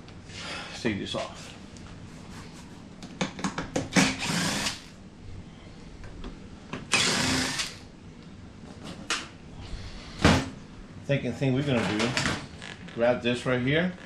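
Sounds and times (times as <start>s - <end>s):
power drill spinning: 3.9s - 4.9s, 6.9s - 7.8s.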